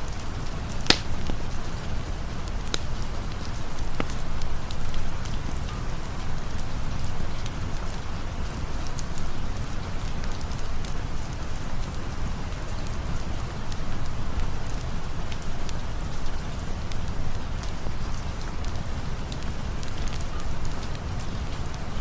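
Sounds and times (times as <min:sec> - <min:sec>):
sharp ticks of raindrops: 0:00.0 - 0:22.0
steady rain hiss: 0:00.0 - 0:22.0.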